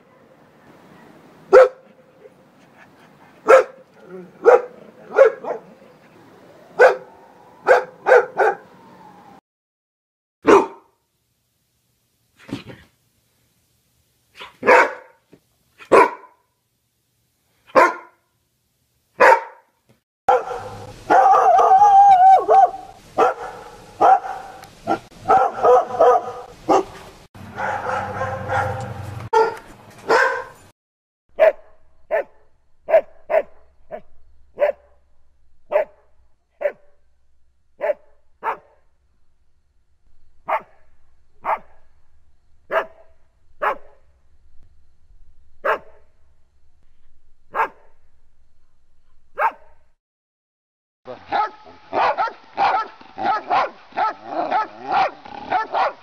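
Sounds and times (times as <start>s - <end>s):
dog barking: 1.0s - 2.0s, 3.4s - 3.8s, 4.4s - 5.8s, 6.8s - 8.7s, 10.4s - 10.9s, 14.4s - 15.2s, 15.8s - 16.4s, 17.7s - 18.2s, 19.2s - 19.7s, 20.3s - 30.6s, 31.4s - 34.0s, 34.6s - 34.9s, 35.7s - 36.0s, 36.6s - 36.9s, 37.8s - 38.8s, 40.5s - 40.8s, 41.4s - 41.8s, 42.7s - 43.0s, 43.6s - 44.0s, 45.6s - 46.0s, 47.5s - 47.9s, 49.4s - 49.8s, 51.3s - 56.0s
dog short barks: 10.4s - 10.9s, 14.4s - 15.2s, 27.6s - 30.6s
dog drawn-out cries: 20.3s - 26.9s, 51.2s - 56.0s.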